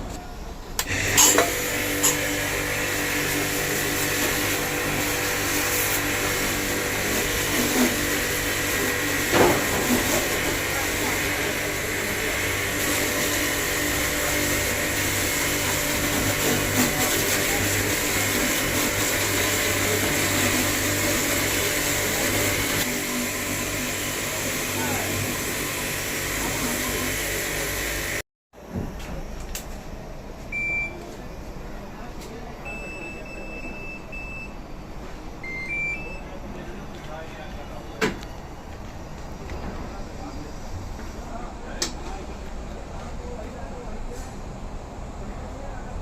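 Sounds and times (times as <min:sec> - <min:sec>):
washing machine motor humming: 0:00.0 - 0:28.2, 0:32.5 - 0:36.8.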